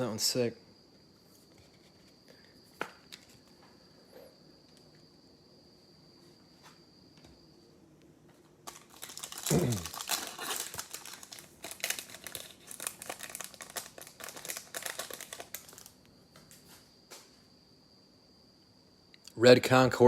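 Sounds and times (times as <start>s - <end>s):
foil wrapper tearing and crinkling: 8.6s - 16.0s.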